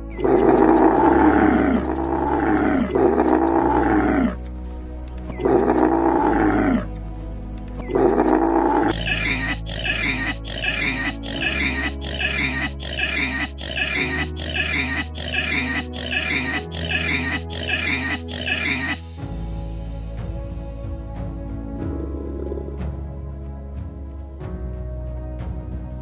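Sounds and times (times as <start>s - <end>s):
camel calling loudly: 0.2s - 4.4s, 5.4s - 6.9s, 7.9s - 19.1s.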